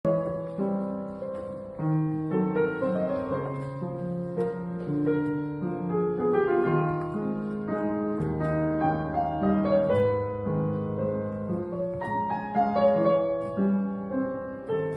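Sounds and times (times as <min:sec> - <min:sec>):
slow gentle solo piano: 0:00.0 - 0:14.9.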